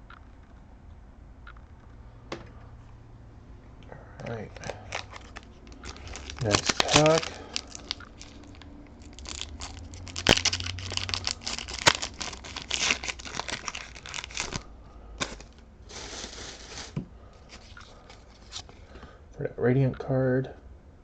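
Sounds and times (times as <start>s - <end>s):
foil wrapper crinkling and tearing: 4.3s - 18.7s.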